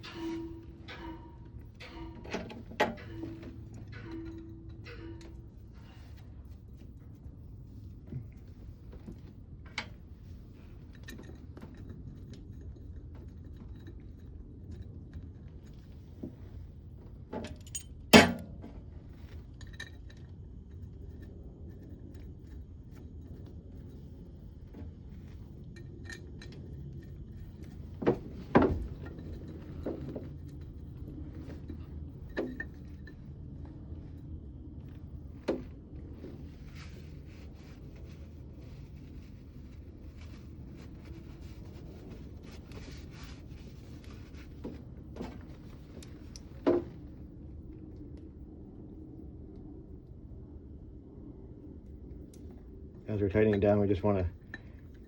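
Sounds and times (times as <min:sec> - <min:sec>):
metal tools clanking: 0:00.0 - 0:06.2
steady low hum: 0:00.0 - 0:55.0.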